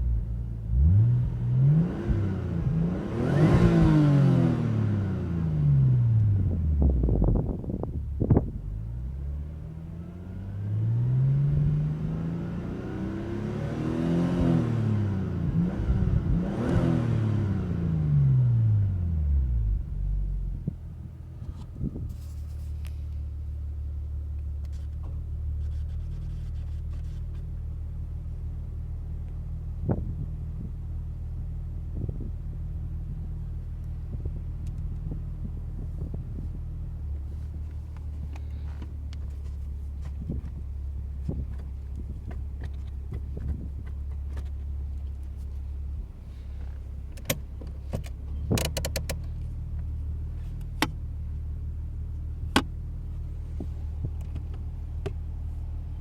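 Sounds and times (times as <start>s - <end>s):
car engine revving and idling: 0.0s - 56.0s.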